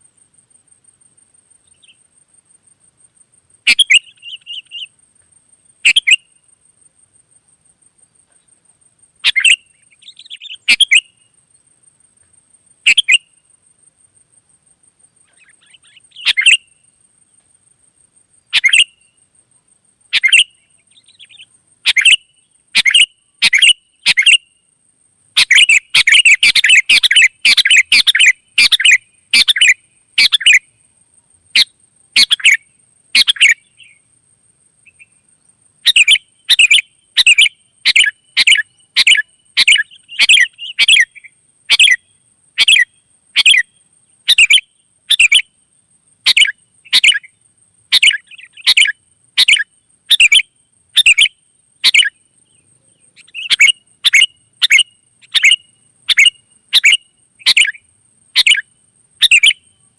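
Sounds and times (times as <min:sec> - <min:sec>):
faint high-pitched whine: 0:00.0 - 0:59.9
bulbuls chirping: 0:25.4 - 0:30.6, 0:51.0 - 0:57.8.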